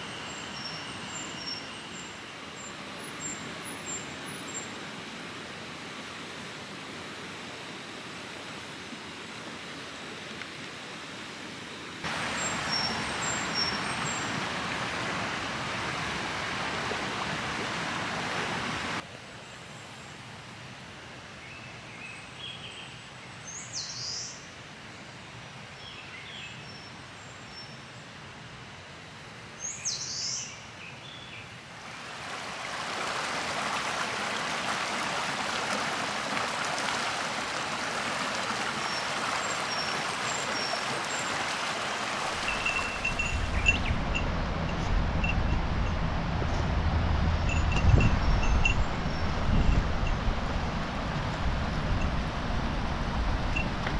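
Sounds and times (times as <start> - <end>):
river water rushing: 12.0 - 19.1, 31.6 - 49.2
birds chirping: 12.1 - 14.6, 38.7 - 44.2.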